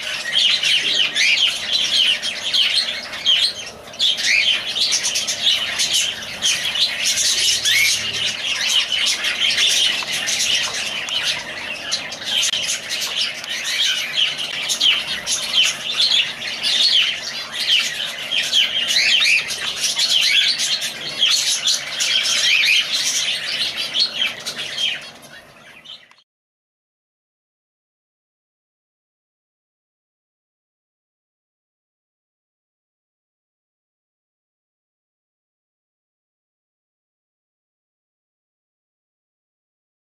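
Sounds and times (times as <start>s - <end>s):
birds chirping and squawking: 0.0s - 26.2s.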